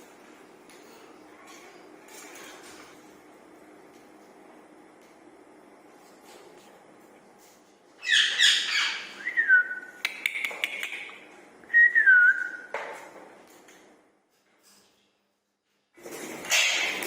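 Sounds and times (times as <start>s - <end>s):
parakeet harsh calls: 8.0s - 9.2s
sharp clicks: 10.0s - 11.2s.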